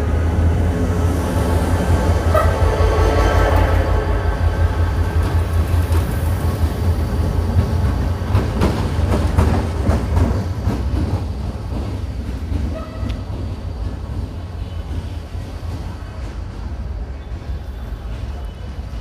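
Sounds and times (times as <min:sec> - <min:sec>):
passenger train rumbling: 0:00.0 - 0:19.0
wheels clacking over rail joints: 0:05.0 - 0:16.7.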